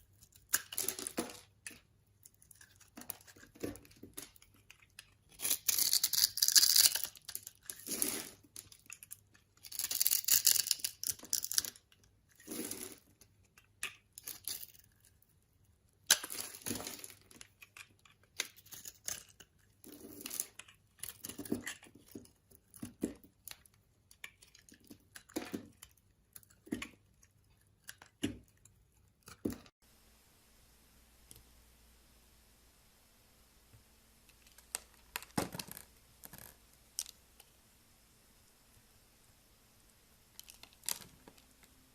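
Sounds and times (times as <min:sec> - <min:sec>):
faint steady hiss: 0:00.0 - 0:41.9.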